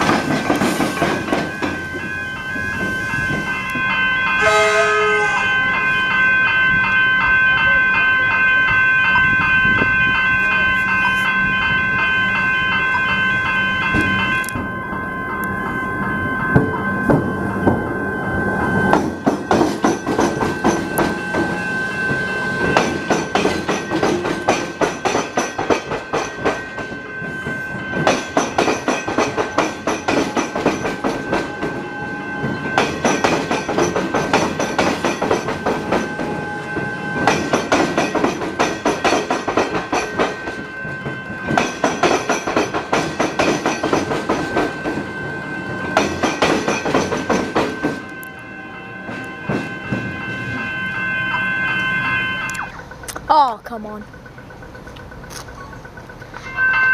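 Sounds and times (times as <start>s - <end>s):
train wheels clattering over rails: 0.0s - 4.0s, 18.5s - 48.2s, 49.0s - 50.7s.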